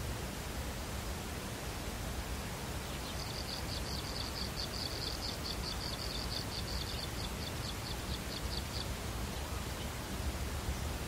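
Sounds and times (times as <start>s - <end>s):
nestling chirping: 3.0s - 8.9s.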